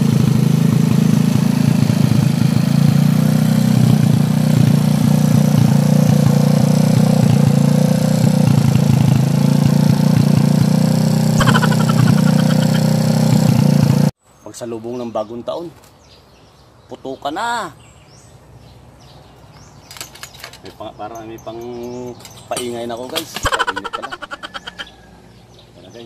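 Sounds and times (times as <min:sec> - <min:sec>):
motorcycle engine idling: 0:00.0 - 0:14.1.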